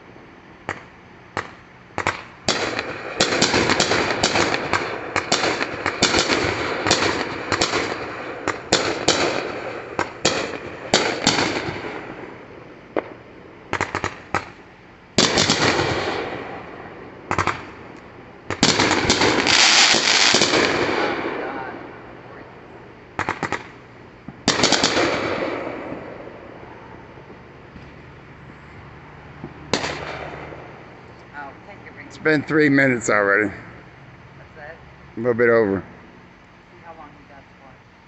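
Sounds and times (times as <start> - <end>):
rapid fireworks crackling: 0.0 - 38.0
fireworks bangs and booms: 0.7 - 14.6, 15.2 - 17.8, 18.4 - 22.2, 23.2 - 27.9, 29.4 - 30.8.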